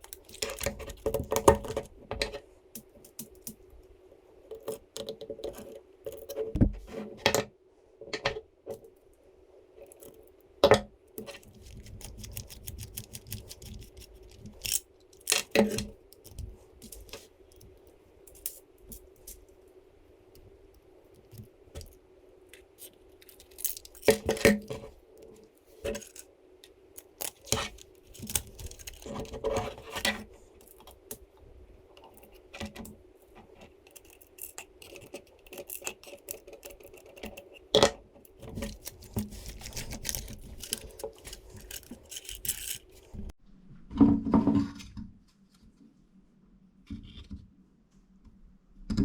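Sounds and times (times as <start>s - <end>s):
plastic parts clicking and tapping: 0.0s - 3.6s, 32.0s - 43.3s
faint steady hum: 0.0s - 49.0s
metal screws and washers clinking: 23.2s - 24.4s, 40.5s - 43.1s.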